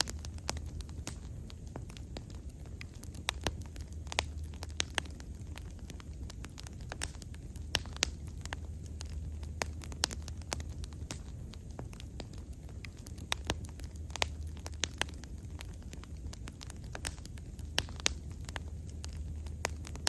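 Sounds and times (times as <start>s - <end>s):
bonfire crackling: 0.0s - 20.0s.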